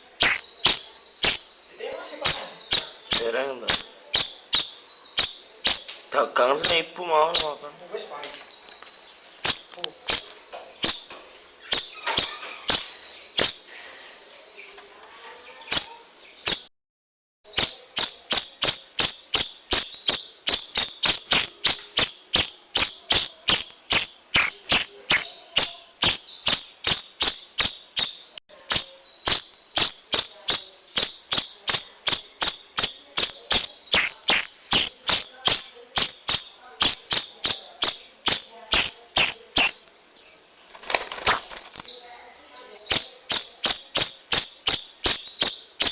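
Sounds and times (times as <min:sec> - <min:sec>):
songbird sharp high chirps: 0:00.0 - 0:07.6, 0:08.4 - 0:14.8, 0:15.4 - 0:16.7, 0:17.5 - 0:45.9.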